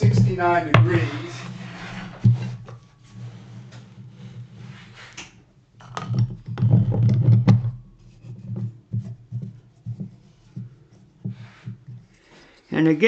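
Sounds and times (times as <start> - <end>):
steady low hum: 0.0 - 2.5.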